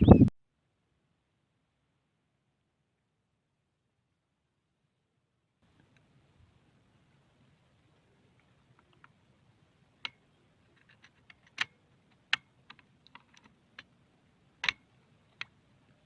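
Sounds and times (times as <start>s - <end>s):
sharp clicks and taps: 14.6s - 14.8s.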